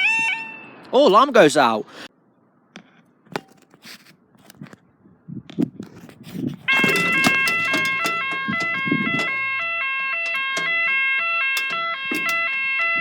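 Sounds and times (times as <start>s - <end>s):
two-tone level crossing alarm: 6.7s - 13.0s.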